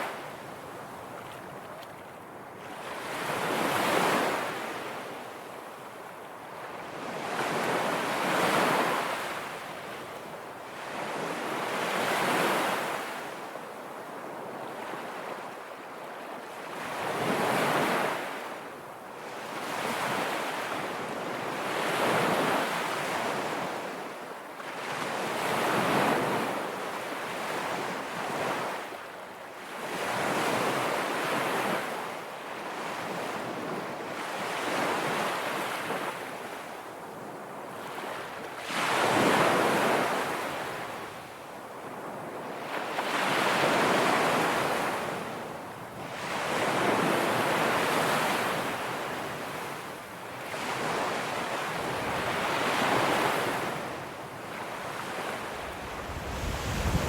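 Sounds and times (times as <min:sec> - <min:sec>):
waves breaking on shore: 0:52.1 - 0:57.0.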